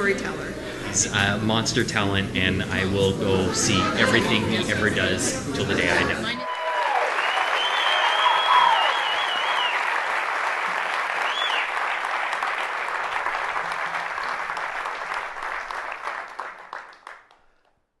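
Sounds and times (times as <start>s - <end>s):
audience applauding: 6.3s - 17.8s
short whistle: 7.3s - 9.7s.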